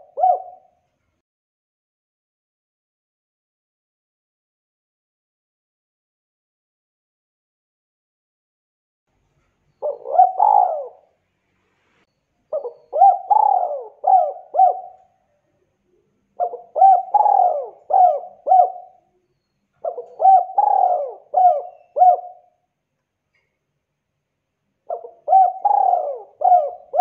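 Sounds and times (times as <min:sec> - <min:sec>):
dove cooing: 0:00.0 - 0:00.8, 0:09.8 - 0:11.2, 0:12.5 - 0:15.2, 0:15.9 - 0:19.2, 0:19.8 - 0:22.6, 0:24.9 - 0:27.0.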